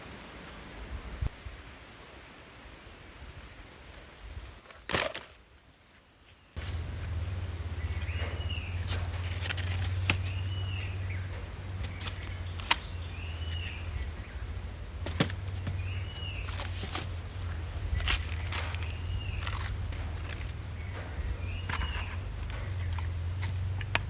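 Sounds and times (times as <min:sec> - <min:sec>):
sharp clicks: 0:06.6 - 0:24.0
steady low rumble: 0:06.6 - 0:24.0.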